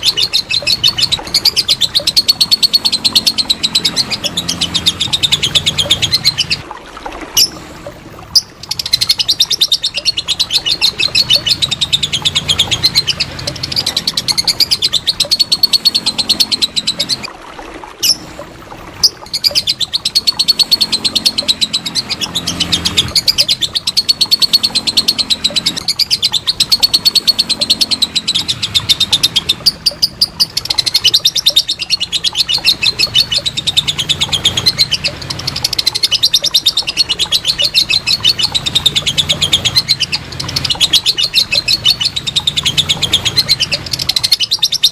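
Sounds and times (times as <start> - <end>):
bird chattering shrill notes: 8.4 - 17.3, 19.0 - 44.9.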